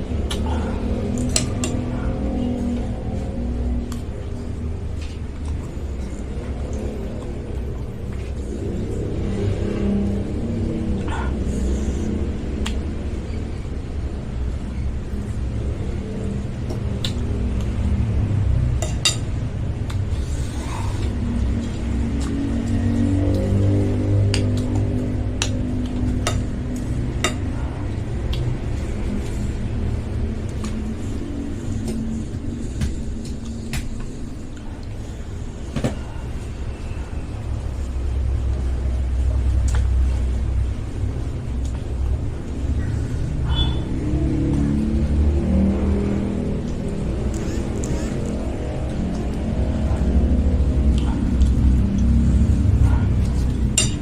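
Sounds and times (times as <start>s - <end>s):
low rumble: 0.0s - 54.0s
cutlery clinking against a bowl: 18.8s - 19.3s, 27.2s - 27.6s, 53.7s - 54.0s.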